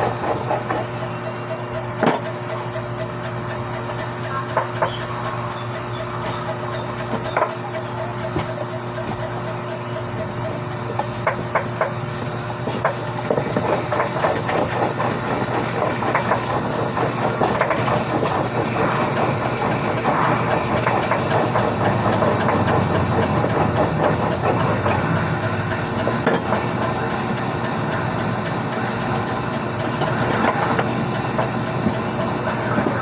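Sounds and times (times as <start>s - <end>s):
traffic rumble: 18.6s - 33.0s.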